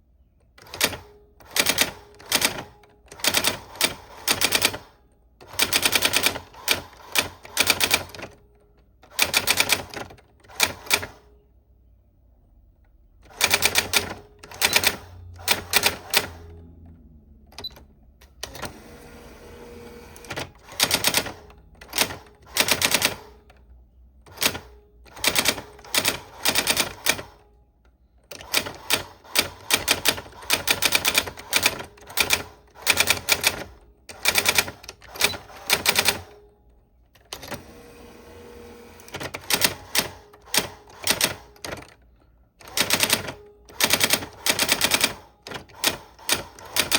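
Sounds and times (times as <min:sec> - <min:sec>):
typewriter keys clacking: 0:00.6 - 0:04.8, 0:24.3 - 0:27.4, 0:28.3 - 0:36.3, 0:39.1 - 0:42.0, 0:42.6 - 0:46.9.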